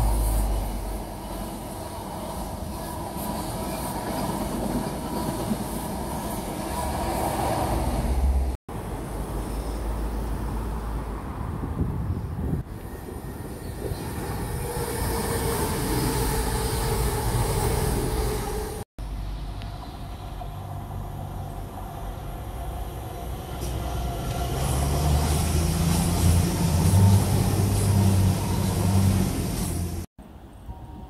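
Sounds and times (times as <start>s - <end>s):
diesel passenger train approaching: 0.0s - 31.0s
diesel train passing at speed: 0.0s - 31.0s.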